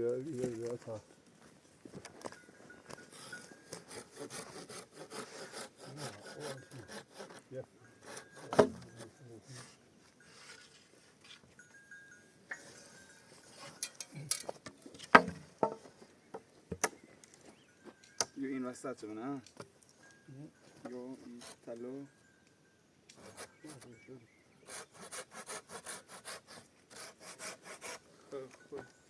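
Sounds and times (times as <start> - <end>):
hand tool scraping wood: 2.9 - 11.4, 12.5 - 16.0, 20.8 - 21.7, 23.1 - 23.9, 24.6 - 28.5.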